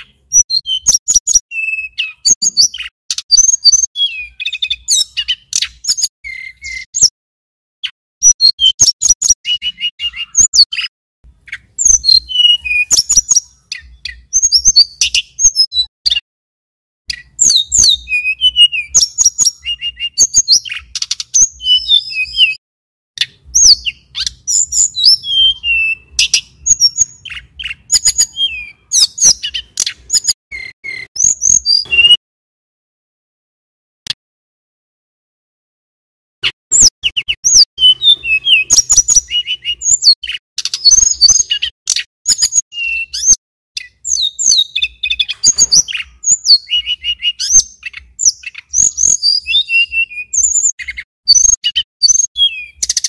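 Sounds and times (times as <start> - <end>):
bird singing chips trills and whistles: 0.0 - 7.1, 7.8 - 16.2, 17.1 - 22.6, 23.2 - 32.2, 36.7 - 53.0.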